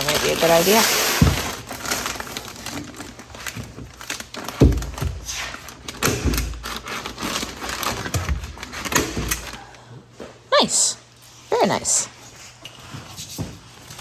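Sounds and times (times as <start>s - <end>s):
building materials rustling: 0.0s - 9.7s.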